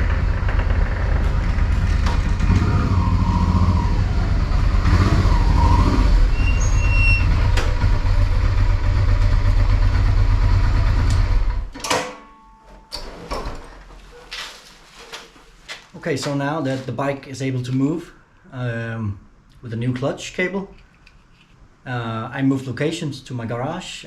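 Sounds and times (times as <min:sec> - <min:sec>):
motorcycle engine rumbling: 0:00.0 - 0:11.7.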